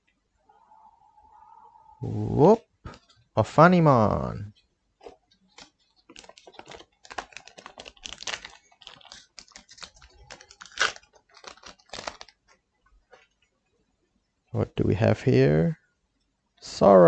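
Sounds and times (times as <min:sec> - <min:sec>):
trading cards clicking and rustling: 0:05.0 - 0:13.3.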